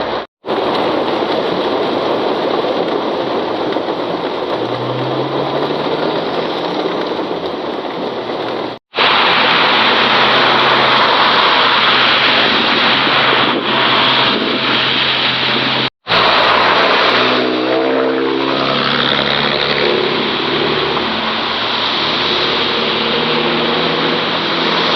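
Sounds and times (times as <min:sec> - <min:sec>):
heavy rain: 0:00.0 - 0:24.9
vehicle engine running: 0:03.8 - 0:24.9
engine revving: 0:04.5 - 0:07.4, 0:09.0 - 0:24.9.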